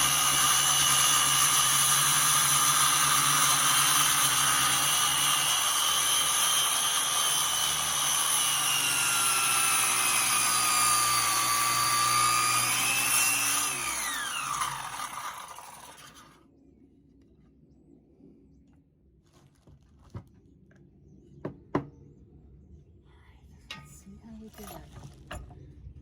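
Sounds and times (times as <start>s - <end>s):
electric saw cutting wood: 0.0s - 16.4s.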